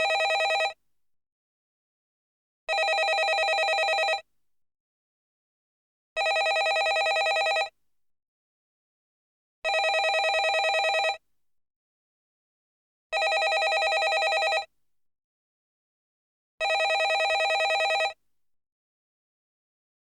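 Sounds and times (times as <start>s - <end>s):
telephone ringing: 0.0s - 0.8s, 2.7s - 4.2s, 6.2s - 7.7s, 9.7s - 11.2s, 13.2s - 14.7s, 16.6s - 18.2s.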